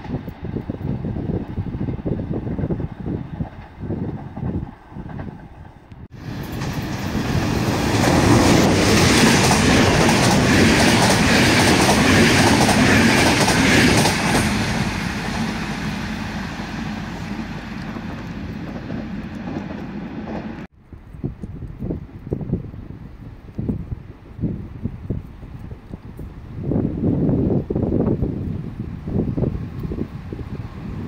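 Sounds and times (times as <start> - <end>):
wind buffeting microphone: 0.0 - 31.0
train wheels clattering: 6.4 - 15.9.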